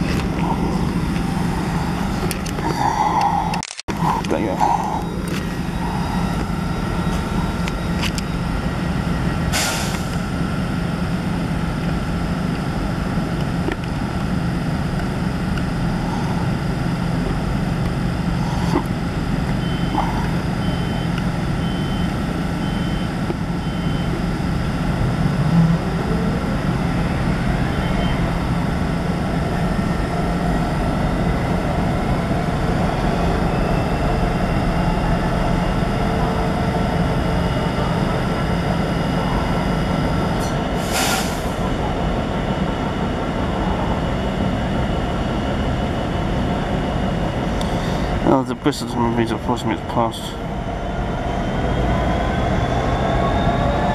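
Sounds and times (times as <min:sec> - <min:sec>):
rising whine: 0:00.0 - 0:49.2, 0:50.3 - 0:53.9
train humming: 0:00.0 - 0:53.9.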